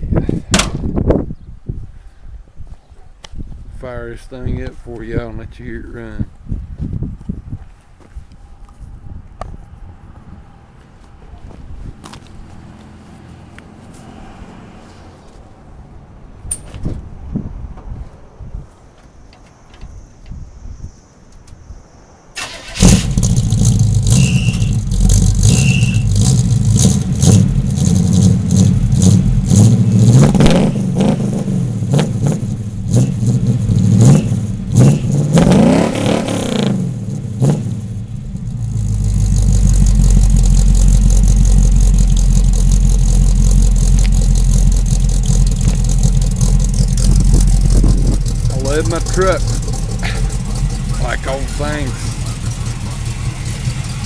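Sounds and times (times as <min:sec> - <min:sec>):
truck engine revving and idling: 0:22.6 - 0:54.0.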